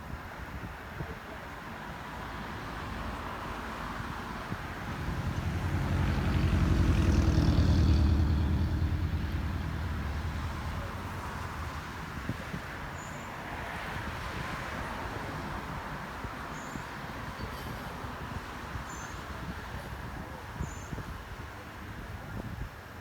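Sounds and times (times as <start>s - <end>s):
motor vehicle driving past: 4.8s - 11.8s.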